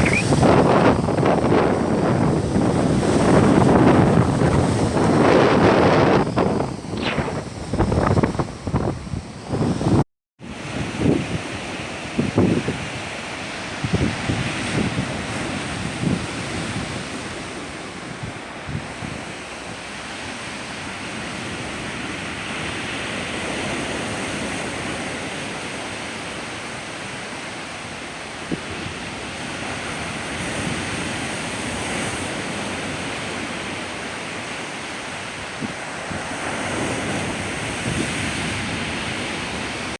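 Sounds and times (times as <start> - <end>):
sea surf breaking: 0.0 - 2.2
wind buffeting microphone: 0.0 - 10.0, 13.8 - 19.5.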